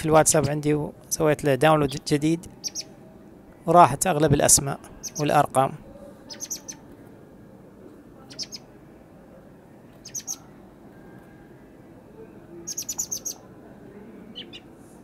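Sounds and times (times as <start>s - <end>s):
young songbirds chirping: 1.8s - 3.1s, 5.0s - 5.5s, 6.2s - 6.9s, 8.2s - 8.7s, 9.9s - 10.5s, 12.6s - 13.5s, 14.2s - 14.8s.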